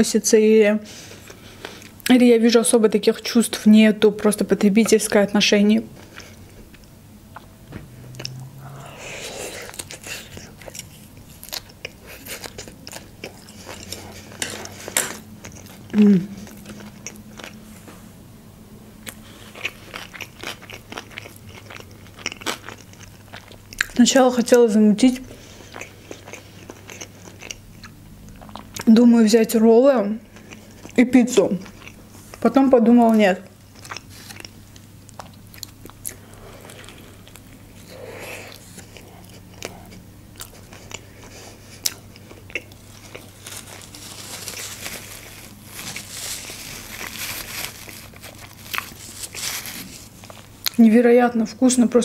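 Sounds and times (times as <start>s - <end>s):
person chewing crunchy food: 6.0s - 17.7s, 19.0s - 24.0s, 25.1s - 28.9s, 30.2s - 32.4s, 33.5s - 50.8s
paper napkin rustling: 42.9s - 50.4s.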